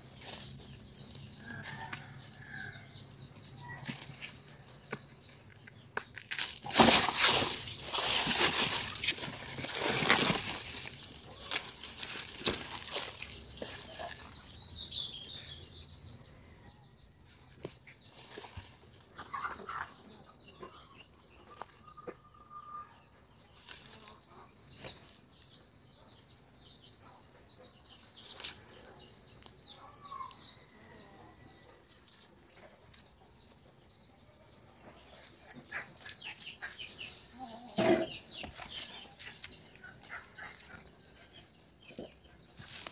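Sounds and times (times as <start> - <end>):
rustling crunches: 3.8 - 14.5, 35.0 - 42.9.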